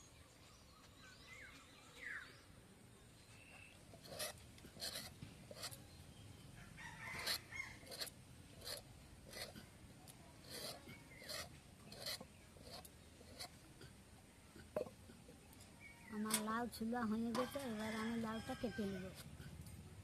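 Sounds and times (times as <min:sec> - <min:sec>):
blade scraping gourd skin: 0:03.9 - 0:05.9, 0:07.0 - 0:09.7, 0:10.4 - 0:13.6.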